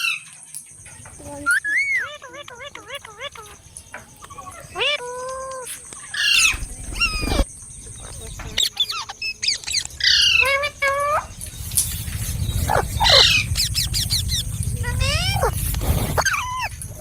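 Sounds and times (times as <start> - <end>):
parrot squawking: 1.4 - 7.4, 8.1 - 17.0
low rumble: 9.9 - 17.0.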